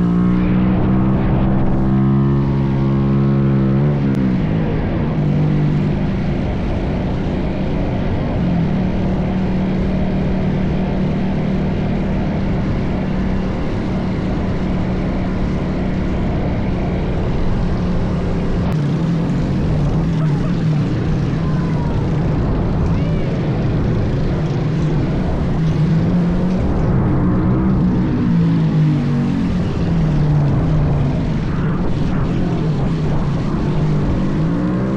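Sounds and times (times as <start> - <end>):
wind noise on microphone: 20.7 - 34.9.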